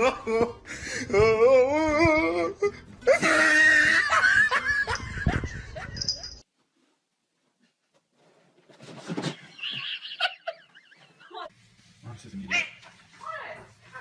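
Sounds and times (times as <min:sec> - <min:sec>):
person laughing hard: 0:03.1 - 0:06.2.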